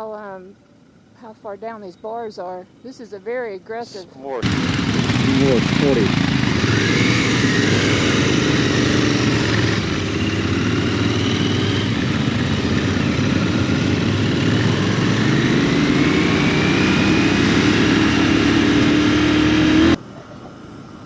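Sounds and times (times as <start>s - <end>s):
motorcycle engine accelerating: 4.4s - 20.0s.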